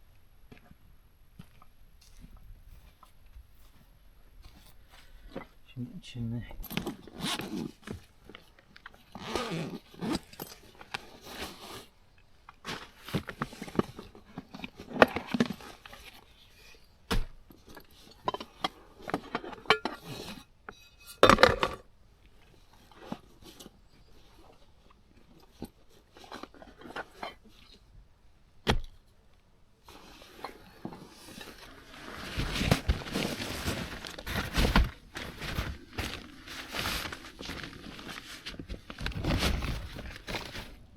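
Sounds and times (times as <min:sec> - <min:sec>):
camping gear rustling and crunching: 0:01.3 - 0:05.7, 0:06.6 - 0:20.6, 0:22.2 - 0:29.1, 0:29.8 - 0:40.9.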